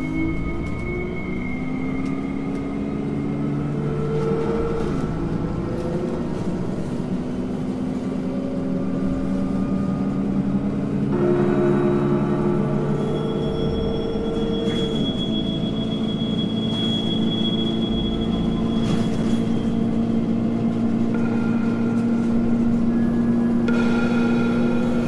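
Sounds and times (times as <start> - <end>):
dark ambient drone: 0.0 - 25.0
low rumble: 19.4 - 25.0.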